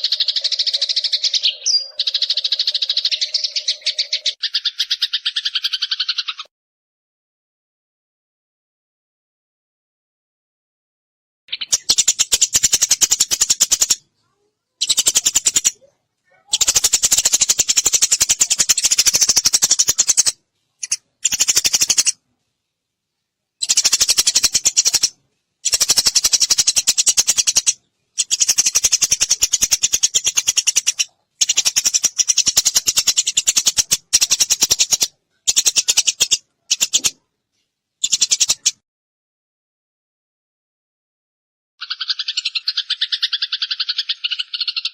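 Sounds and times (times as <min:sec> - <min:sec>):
sparrow chirping: 0:00.0 - 0:06.5, 0:11.5 - 0:22.2, 0:23.6 - 0:37.2, 0:38.0 - 0:38.8, 0:41.8 - 0:44.9.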